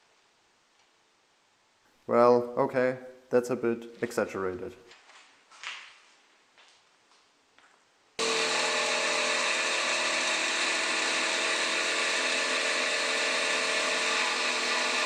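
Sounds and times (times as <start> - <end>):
power grinder on steel: 8.2 - 15.0.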